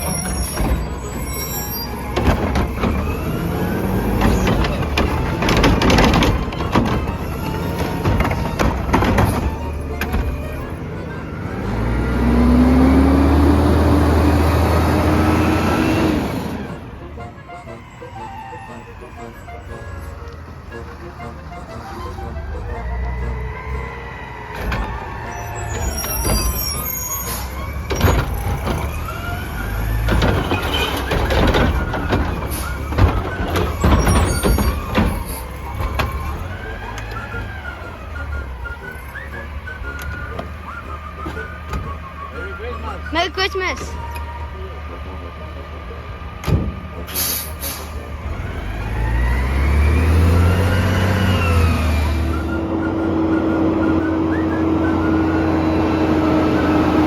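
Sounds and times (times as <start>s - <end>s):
metal clanks and knocks: 0.0s - 11.4s, 24.4s - 42.1s
diesel truck engine revving: 0.0s - 57.0s.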